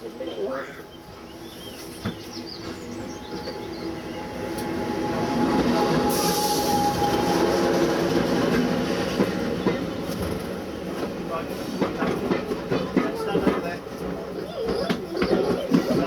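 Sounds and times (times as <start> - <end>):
diesel locomotive engine: 0.0 - 16.0
hiss: 6.0 - 7.2
wheels clattering on rail joints: 6.8 - 16.0.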